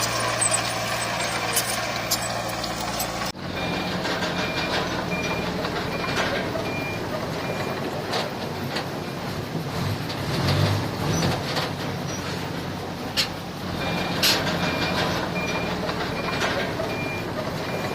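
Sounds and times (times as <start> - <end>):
reversing alarm beeping: 0.0 - 7.8, 13.8 - 17.9
engine rumble: 0.0 - 17.9
heavy machinery running: 0.0 - 17.9
machinery clanks: 0.0 - 17.9.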